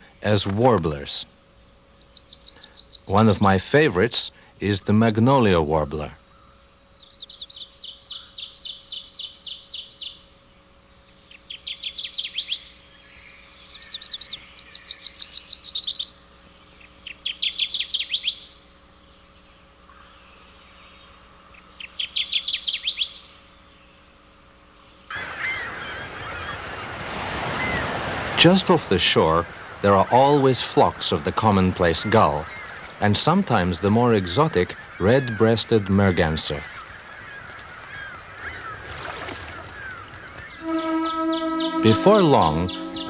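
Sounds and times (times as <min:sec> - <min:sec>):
faint steady hum: 0:00.0 - 0:43.0
wind: 0:00.0 - 0:43.0
warbler singing: 0:02.0 - 0:04.0, 0:04.6 - 0:10.3, 0:10.9 - 0:43.0
surf: 0:25.1 - 0:43.0.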